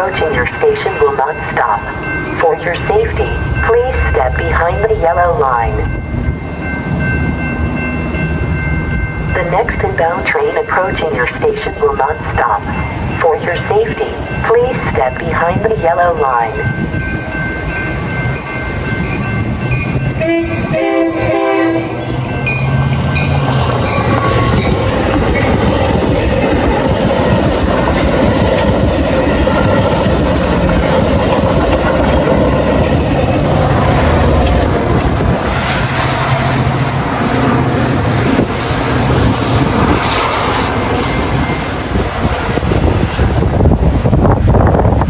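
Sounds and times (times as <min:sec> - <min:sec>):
train rushing and rumbling: 0:00.0 - 0:45.0
train horn blast: 0:20.2 - 0:22.4.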